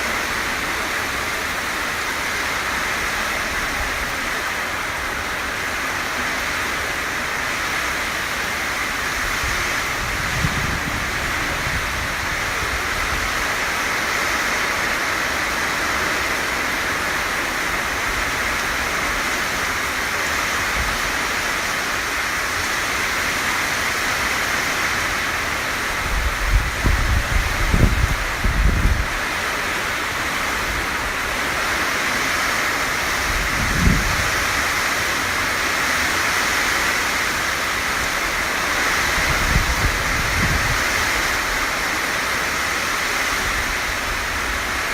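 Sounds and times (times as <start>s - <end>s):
heavy rain pouring: 0.0s - 44.9s
wind buffeting microphone: 9.1s - 13.5s, 25.8s - 29.3s, 33.2s - 34.7s, 38.9s - 41.6s.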